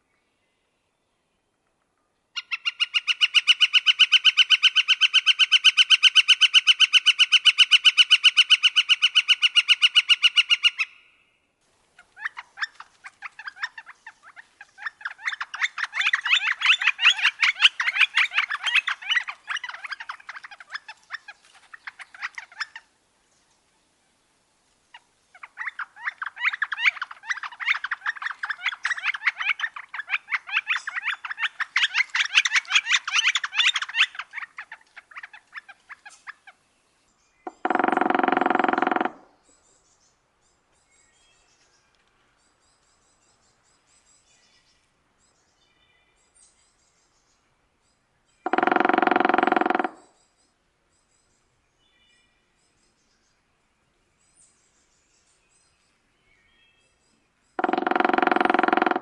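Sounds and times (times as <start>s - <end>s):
woodpecker calling rapid notes: 2.4s - 11.1s, 12.0s - 22.9s, 25.4s - 36.6s, 37.5s - 39.4s, 48.4s - 50.2s, 57.6s - 59.0s.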